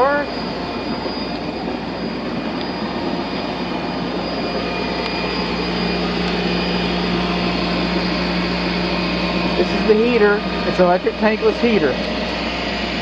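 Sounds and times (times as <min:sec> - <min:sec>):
low hum: 0:00.0 - 0:13.0
outdoor equipment whirring: 0:00.0 - 0:13.0.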